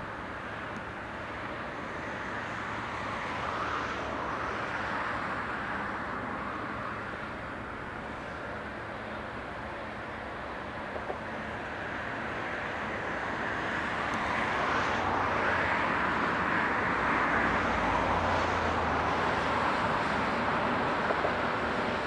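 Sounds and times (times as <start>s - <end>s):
train rolling past: 18.6s - 22.0s.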